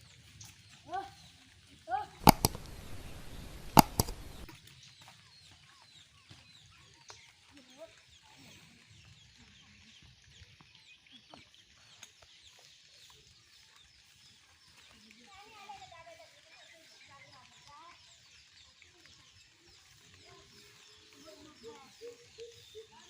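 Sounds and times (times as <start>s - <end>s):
small birds chirping: 0.0s - 23.0s
sharp knocks: 2.2s - 4.5s.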